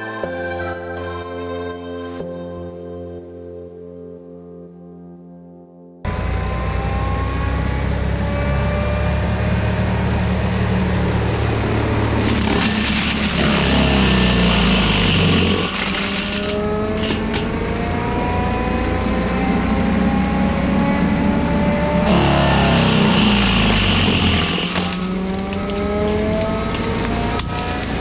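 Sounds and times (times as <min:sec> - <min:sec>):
diesel engine running: 0:06.1 - 0:28.0
mulching head grinding brush: 0:09.2 - 0:21.0, 0:21.9 - 0:28.0.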